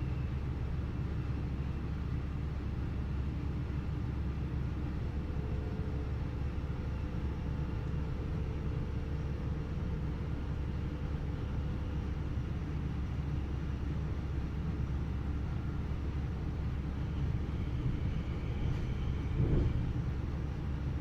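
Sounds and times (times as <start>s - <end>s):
train wheels rumbling on rails: 13.9s - 21.0s.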